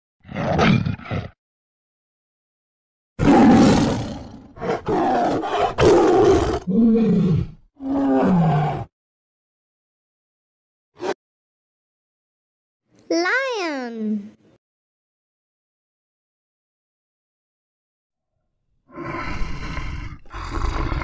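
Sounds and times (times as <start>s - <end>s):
tiger roaring and growling: 0.2s - 1.4s, 3.2s - 8.9s, 18.9s - 21.0s.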